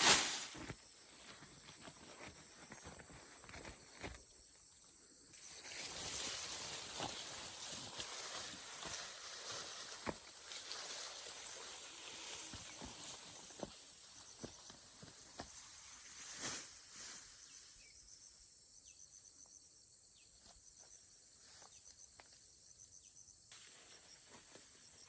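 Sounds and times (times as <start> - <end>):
brief swish: 0.0 - 0.6
insects chirring: 0.1 - 25.0.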